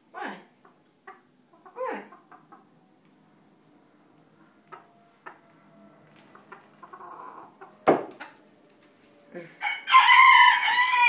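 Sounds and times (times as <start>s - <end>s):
sharp knock: 7.8s - 8.2s
rooster crowing: 9.6s - 11.0s.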